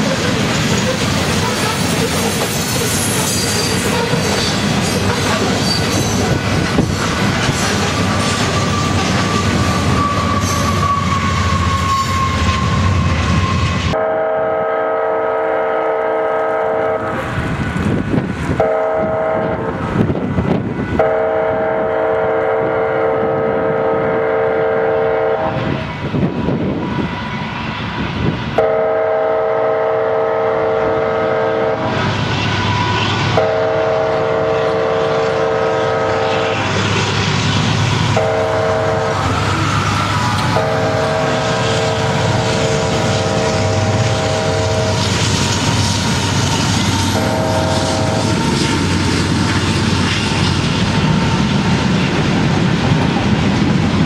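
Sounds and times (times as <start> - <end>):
freight cars rumbling past: 0.0 - 14.0, 30.5 - 54.0
wheel squeal: 0.7 - 14.0
locomotive air horn: 8.2 - 17.2, 18.6 - 19.8, 20.9 - 25.9, 28.6 - 37.2, 38.1 - 48.7.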